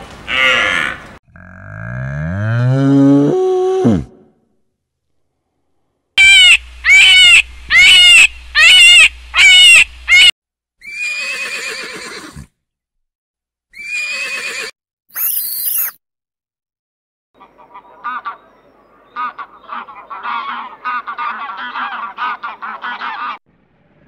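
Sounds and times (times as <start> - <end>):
horse shrill squeal: 6.2 - 12.5, 13.7 - 16.0
horses whinnying: 10.8 - 12.5, 13.8 - 14.7.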